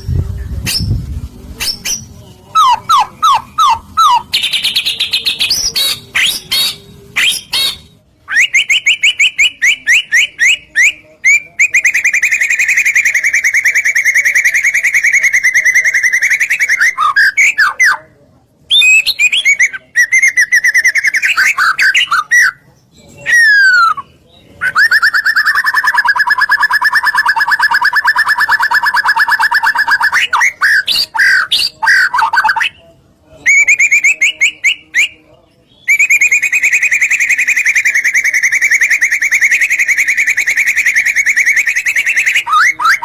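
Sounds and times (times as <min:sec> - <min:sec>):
bird singing fast trills: 0:01.6 - 0:17.9, 0:33.5 - 0:43.0.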